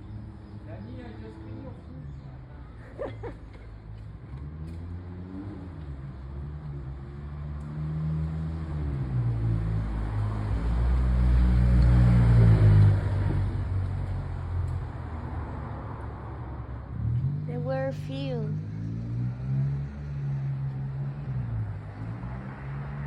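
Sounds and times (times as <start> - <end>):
vehicle engine speeding up: 16.8 - 23.0.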